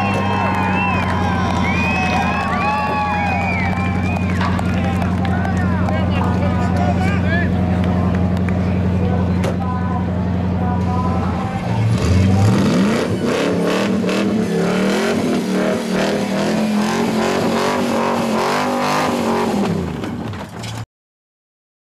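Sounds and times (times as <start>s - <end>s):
car engine revving hard: 11.0s - 20.0s.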